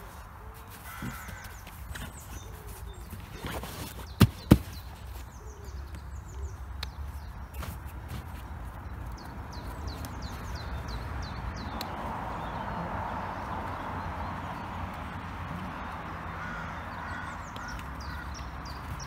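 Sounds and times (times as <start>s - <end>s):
small bird singing: 0.0s - 12.8s.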